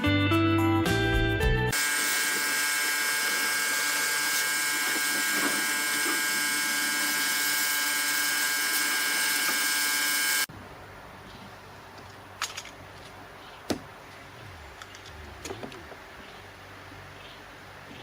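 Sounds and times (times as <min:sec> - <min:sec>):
power tool whining: 0:01.7 - 0:10.5.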